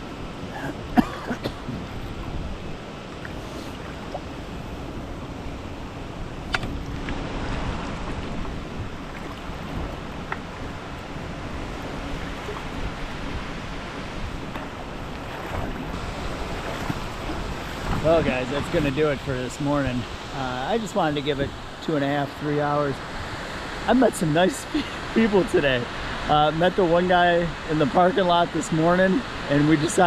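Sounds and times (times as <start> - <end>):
wind buffeting microphone: 0.0 - 21.8
creek water flowing: 0.0 - 30.0.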